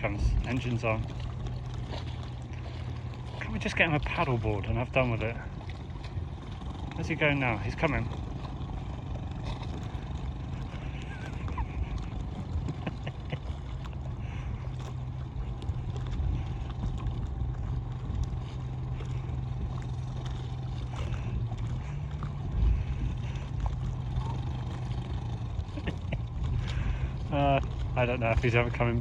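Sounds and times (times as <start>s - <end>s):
outboard motor running: 0.0s - 29.0s.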